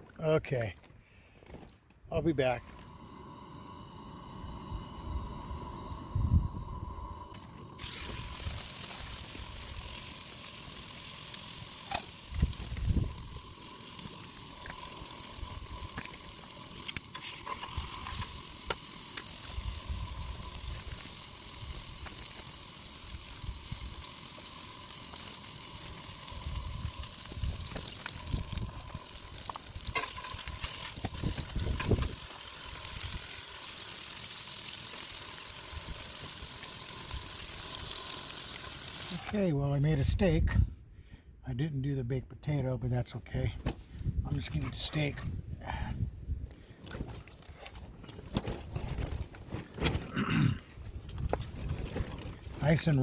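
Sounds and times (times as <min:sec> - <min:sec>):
steak sizzling in frying pan: 0:06.9 - 0:39.2.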